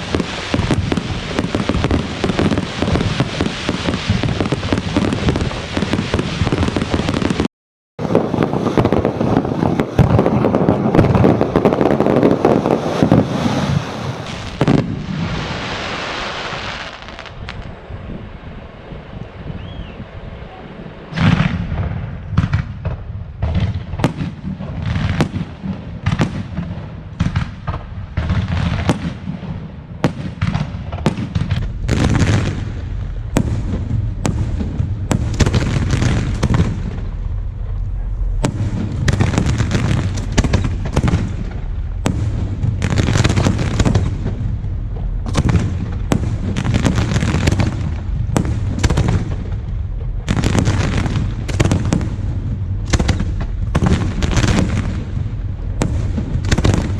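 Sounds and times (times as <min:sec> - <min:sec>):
rumble of firework booms: 0:00.0 - 0:16.2, 0:21.1 - 0:56.9.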